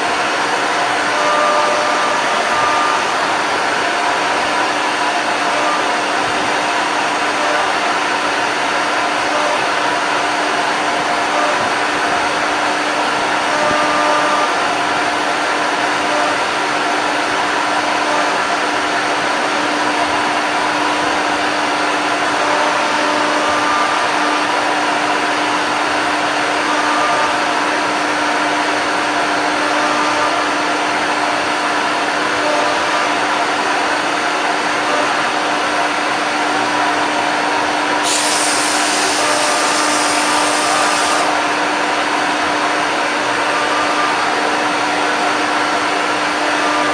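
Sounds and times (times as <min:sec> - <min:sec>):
bright hiss: 0:38.0 - 0:41.3
router spindle cutting: 0:38.0 - 0:41.4.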